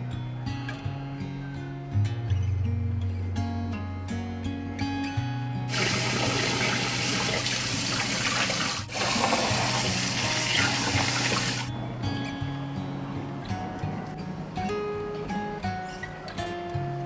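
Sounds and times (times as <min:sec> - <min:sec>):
background music: 0:00.0 - 0:17.0
tap water running into sink: 0:05.7 - 0:11.7.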